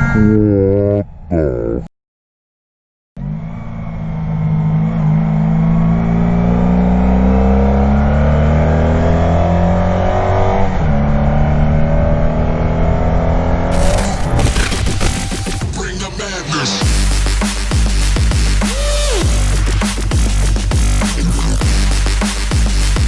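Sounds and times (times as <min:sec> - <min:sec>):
electronic music: 0:13.7 - 0:19.9.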